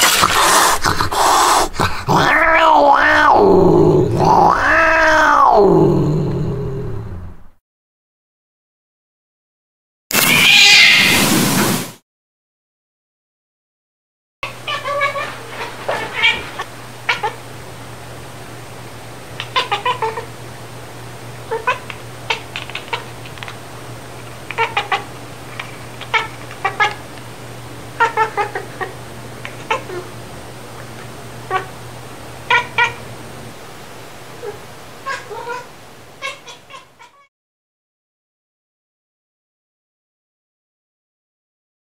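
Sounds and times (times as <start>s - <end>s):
cat meowing: 2.2s - 3.4s, 4.2s - 5.6s, 10.2s - 11.2s, 14.4s - 17.4s, 19.4s - 20.3s, 21.5s - 23.1s, 24.5s - 25.1s, 26.0s - 27.0s, 28.0s - 28.9s, 29.5s - 30.1s, 31.5s - 31.7s, 32.5s - 33.0s, 34.4s - 37.3s
steady low hum: 14.4s - 36.6s.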